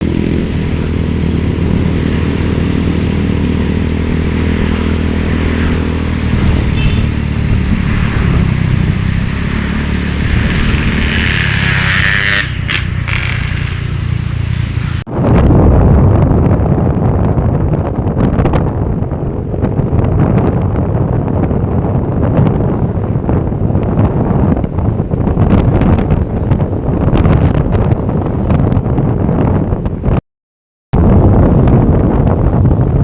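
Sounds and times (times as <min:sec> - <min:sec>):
motorcycle engine running: 0:00.0 - 0:15.1
road noise: 0:00.0 - 0:30.1, 0:31.0 - 0:33.0.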